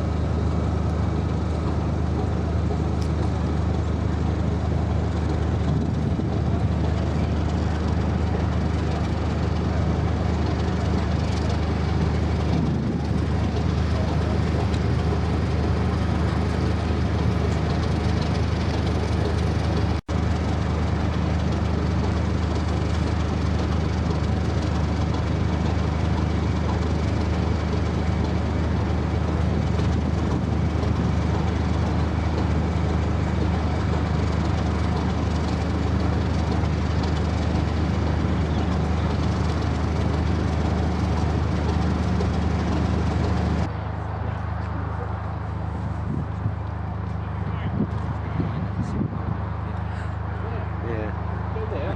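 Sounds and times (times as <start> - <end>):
diesel locomotive engine droning: 0.0 - 51.9.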